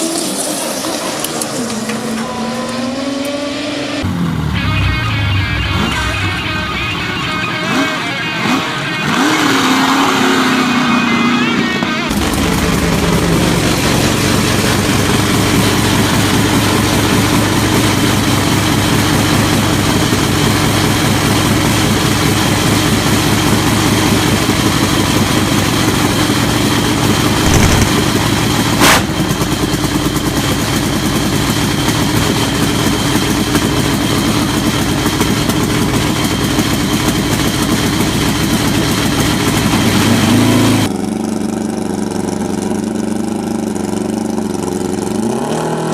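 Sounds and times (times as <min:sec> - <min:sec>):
motorcycle engine running loud: 0:01.7 - 0:45.9
sharp crack: 0:27.4 - 0:29.4.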